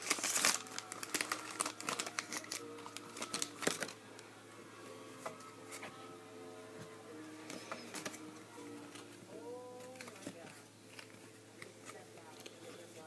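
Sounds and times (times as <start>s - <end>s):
cards being handled: 0.0s - 4.0s, 7.4s - 9.2s, 9.8s - 12.9s
wrapper crinkling: 0.0s - 4.0s, 8.9s - 12.7s
faint background music: 0.0s - 13.0s.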